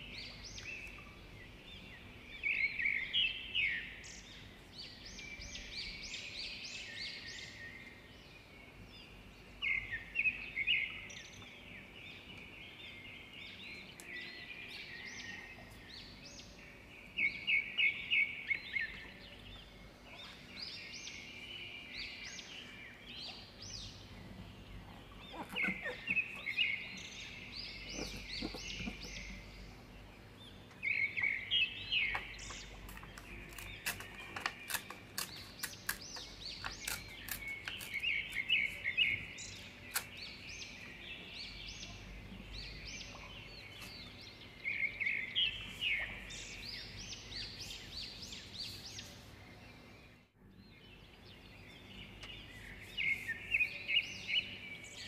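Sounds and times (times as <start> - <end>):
small songbird chirping: 0.0 - 55.0
paper rustling and clicking: 32.9 - 38.4.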